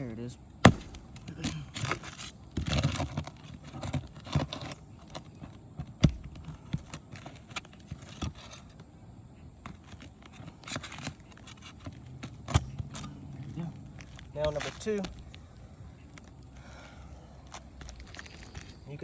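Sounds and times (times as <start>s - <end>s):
shingle crinkling: 0.0s - 19.0s.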